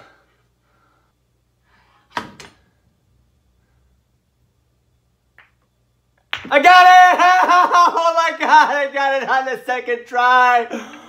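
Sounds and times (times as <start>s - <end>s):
cue striking ball crack: 6.3s - 6.5s.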